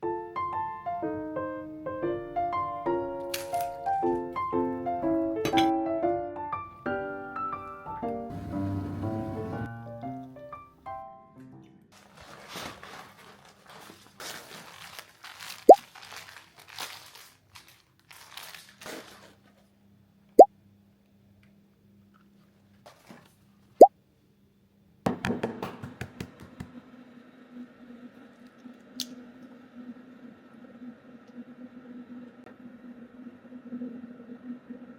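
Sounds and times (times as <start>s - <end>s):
steady hum: 8.3s - 9.7s.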